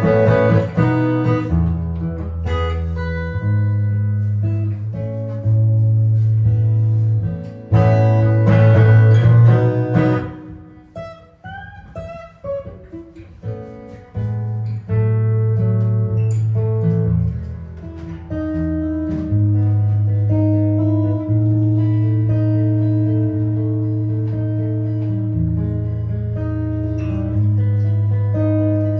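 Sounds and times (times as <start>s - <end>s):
jazz guitar improvising: 0.0s - 28.9s.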